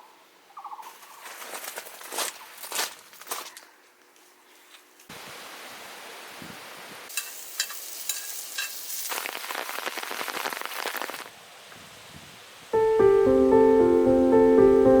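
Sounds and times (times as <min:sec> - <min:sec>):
food sizzling over fire: 0:07.1 - 0:11.3
fire popping and crackling: 0:09.0 - 0:11.3.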